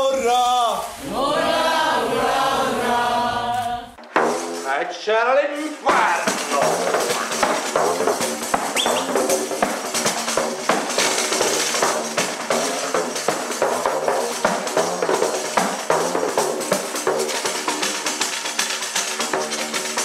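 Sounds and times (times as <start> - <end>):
folk ensemble playing: 5.6 - 20.0
tambourine beating quick rhythm: 5.8 - 20.0.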